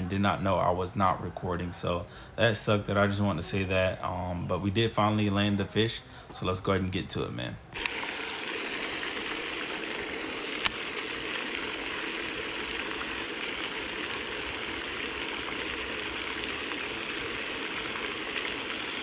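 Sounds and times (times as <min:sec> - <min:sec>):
fountain splashing into pond: 0:07.8 - 0:19.0.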